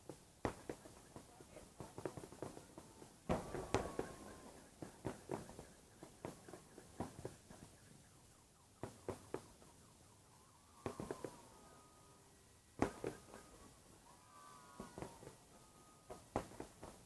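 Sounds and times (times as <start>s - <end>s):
distant fireworks bangs: 0.0s - 17.0s
faint wavering wail: 2.9s - 4.8s, 8.0s - 16.4s.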